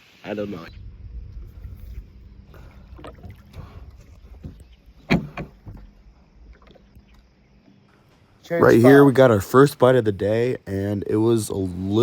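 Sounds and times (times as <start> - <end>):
wind rumble on microphone: 0.5 - 7.1
paddle knocking kayak hull: 2.9 - 7.2.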